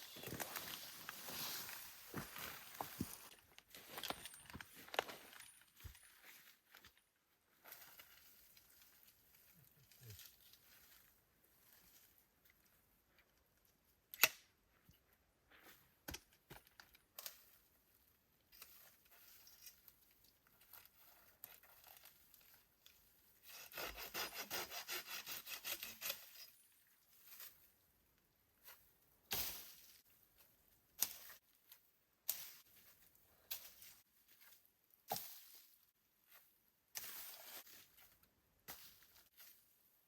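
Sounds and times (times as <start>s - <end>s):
hand saw cutting wood: 23.4s - 26.4s.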